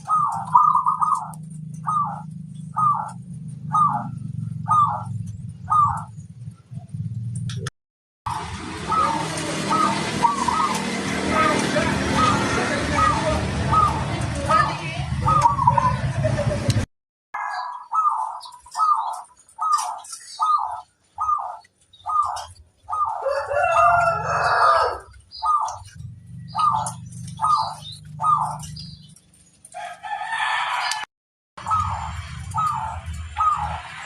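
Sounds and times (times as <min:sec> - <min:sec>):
dove cooing: 0:00.0 - 0:07.0, 0:08.8 - 0:16.3, 0:17.4 - 0:29.2, 0:31.6 - 0:34.0
rooster crowing: 0:17.4 - 0:18.0, 0:23.1 - 0:25.2, 0:29.8 - 0:31.1.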